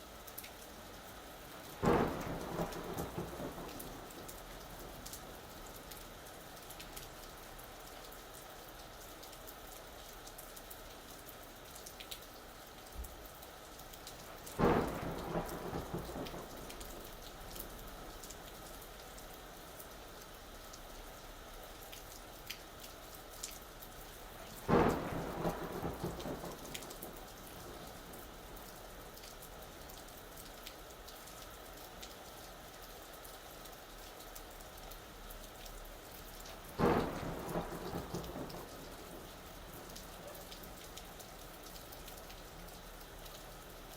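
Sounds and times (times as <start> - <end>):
steady rain: 0.0 - 43.9
thunderclap with rumble: 1.8 - 5.9, 14.3 - 18.6, 24.6 - 28.7, 36.5 - 41.2.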